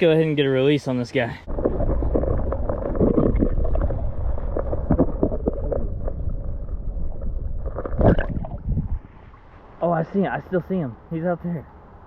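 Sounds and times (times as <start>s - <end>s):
wind rumble on microphone: 1.5s - 9.4s
creek water splashing: 1.5s - 10.7s.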